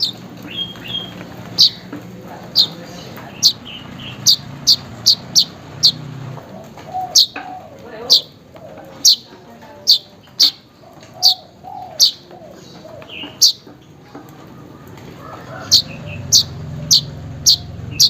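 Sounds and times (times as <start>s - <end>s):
bird warbling: 0.0s - 13.7s, 15.1s - 18.0s
bird calling sharp chips: 0.0s - 13.9s.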